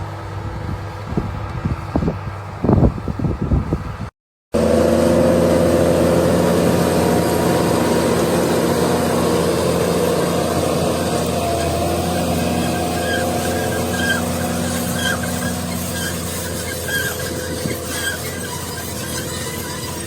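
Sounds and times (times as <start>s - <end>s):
heavy engine running: 0.0s - 20.0s.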